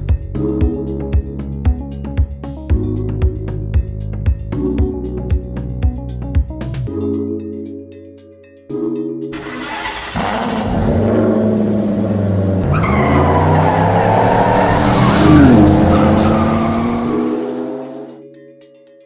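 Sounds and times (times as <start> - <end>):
car engine revving and accelerating: 9.4 - 18.2.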